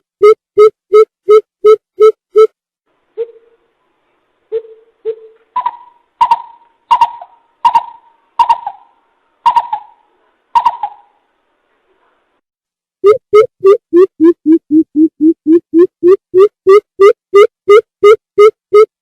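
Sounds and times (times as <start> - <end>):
bird hooting calls: 4.5 - 10.0, 10.6 - 11.2.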